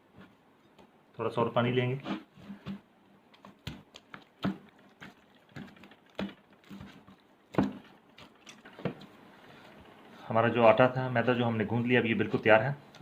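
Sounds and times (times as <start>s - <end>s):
hands kneading dough in a bowl: 0.0s - 10.4s.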